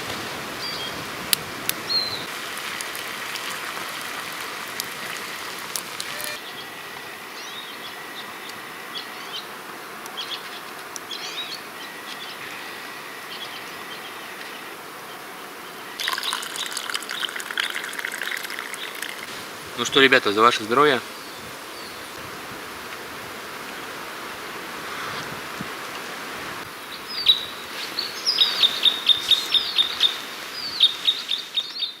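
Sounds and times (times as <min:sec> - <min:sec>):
bird chirps: 0:27.0 - 0:32.0.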